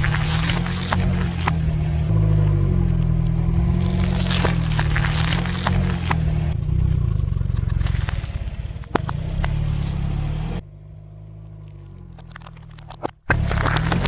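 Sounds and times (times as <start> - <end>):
sharp crack: 0.0 - 1.8, 3.6 - 9.6
car engine running: 0.0 - 14.0.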